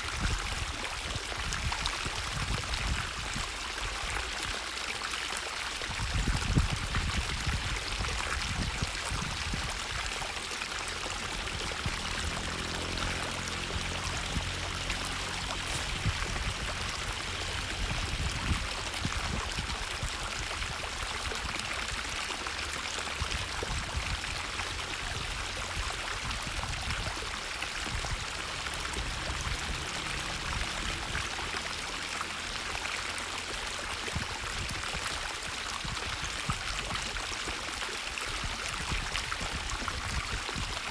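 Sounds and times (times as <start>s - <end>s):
stream water rushing: 0.0s - 40.9s
low rumble: 10.6s - 20.8s, 25.2s - 32.6s.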